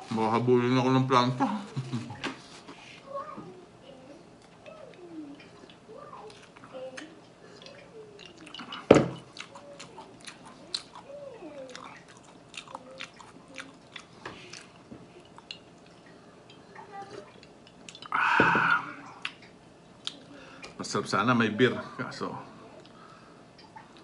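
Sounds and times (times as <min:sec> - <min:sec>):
wet mouth chewing clicks: 0:09.3 - 0:11.1.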